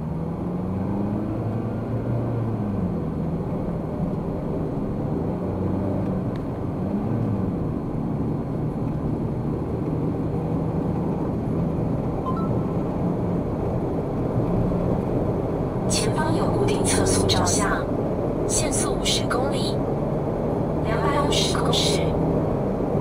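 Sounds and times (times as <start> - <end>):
car engine: 0.0 - 23.0.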